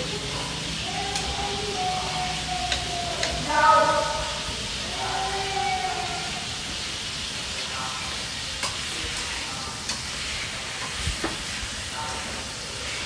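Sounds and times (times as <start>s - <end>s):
food sizzling in a pan: 0.0s - 13.0s
chopsticks clicking against pan: 1.1s - 1.4s, 2.6s - 3.4s, 8.6s - 10.1s.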